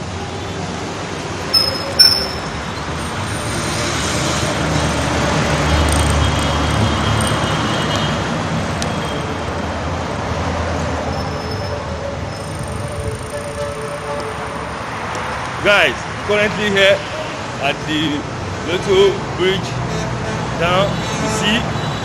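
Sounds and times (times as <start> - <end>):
vehicle engine rumble: 0.0 - 16.4
road traffic noise: 0.0 - 22.0.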